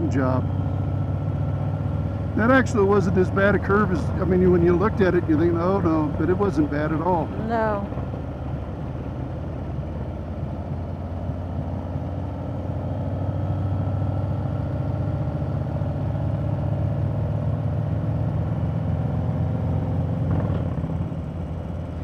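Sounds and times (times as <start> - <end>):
motorcycle engine running: 0.0 - 12.7.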